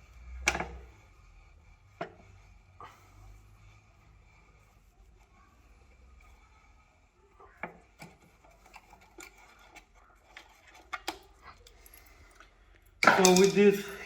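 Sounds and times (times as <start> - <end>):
bolts and tools clicking: 13.0 - 14.0.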